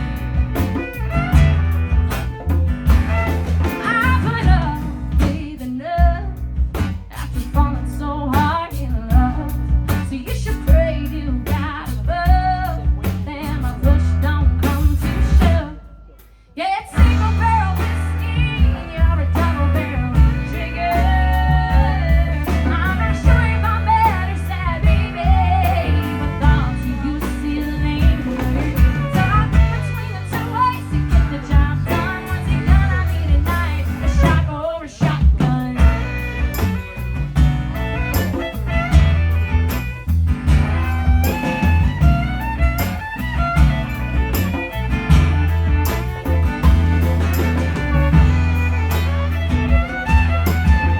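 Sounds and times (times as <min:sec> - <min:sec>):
electric guitar: 0:00.0 - 0:16.0, 0:16.7 - 0:50.9
bass guitar: 0:00.0 - 0:50.9
drums: 0:00.0 - 0:50.9
person singing: 0:16.6 - 0:36.6.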